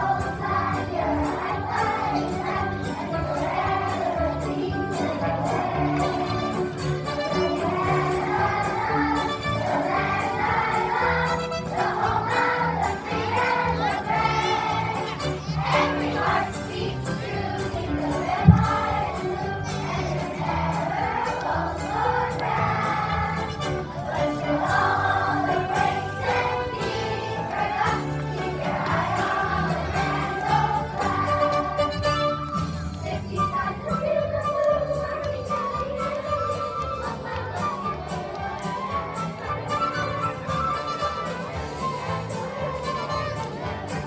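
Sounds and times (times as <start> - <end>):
group of voices singing: 0.0 - 44.0
instrumental accompaniment: 0.0 - 44.0
brief thump: 18.4 - 19.0.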